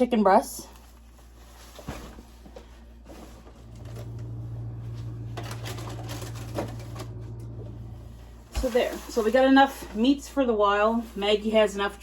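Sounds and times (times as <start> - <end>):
low steady hum: 2.1 - 10.0
plastic packaging crinkling: 3.6 - 9.5.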